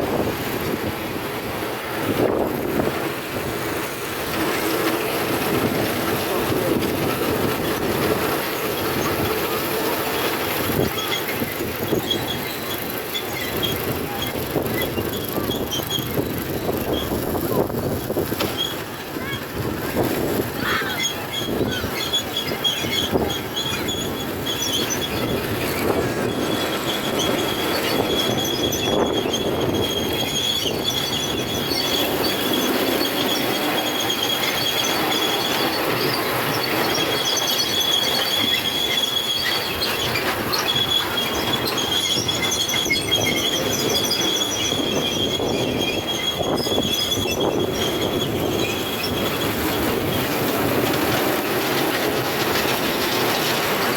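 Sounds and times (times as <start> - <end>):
train rolling rumble: 0.0 - 53.9
train wheels squealing: 0.2 - 53.9.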